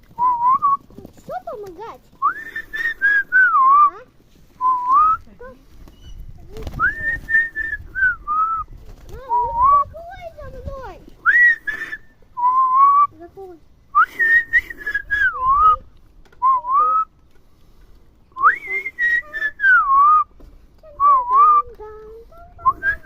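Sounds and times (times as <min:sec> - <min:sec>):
person whistling a warbling tune: 0:02.2 - 0:04.0, 0:11.2 - 0:13.1, 0:14.0 - 0:15.8, 0:18.4 - 0:20.3, 0:22.6 - 0:23.0.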